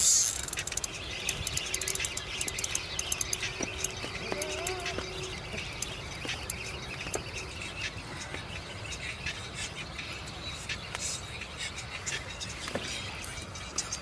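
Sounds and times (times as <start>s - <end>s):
wavering squeal: 0.0s - 7.8s
birds chirping: 0.0s - 14.0s.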